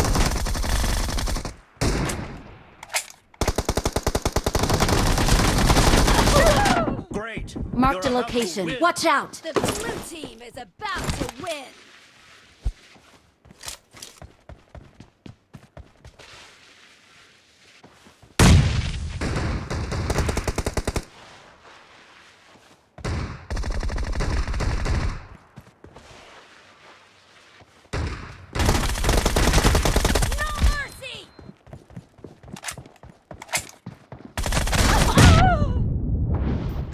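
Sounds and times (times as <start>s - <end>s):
footsteps: 9.5s - 18.4s, 21.1s - 23.1s, 25.3s - 28.4s, 30.7s - 34.4s
automatic gunfire bursts: 28.6s - 30.8s.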